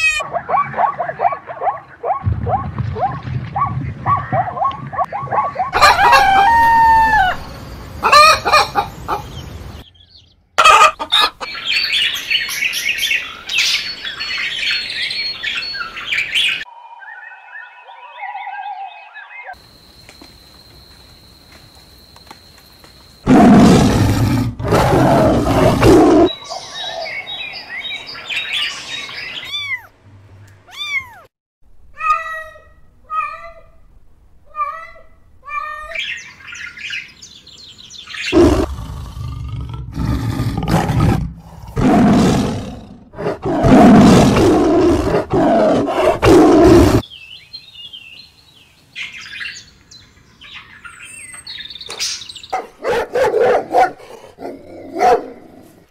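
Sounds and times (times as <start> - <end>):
bird chirps: 11.4 - 20.8, 26.2 - 31.2, 47.0 - 52.6.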